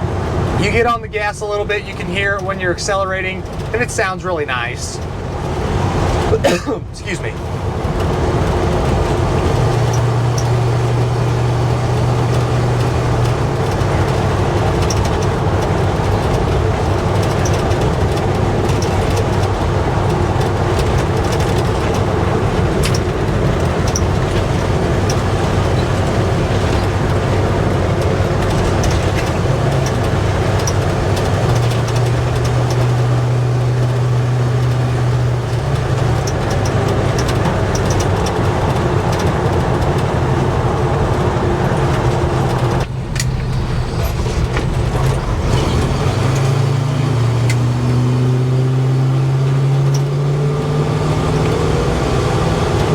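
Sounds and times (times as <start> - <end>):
engine and exhaust hum: 0.0 - 52.9
tire and road noise: 0.0 - 52.9.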